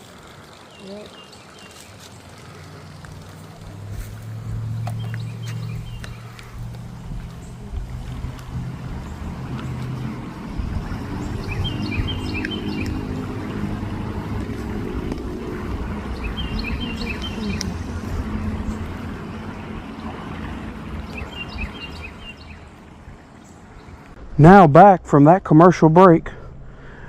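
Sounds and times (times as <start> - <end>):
creek water: 0.0 - 26.6
wind rumbling on microphone: 2.9 - 24.4
bird chirping: 4.5 - 7.6, 11.1 - 13.3, 16.0 - 18.9, 21.0 - 22.7.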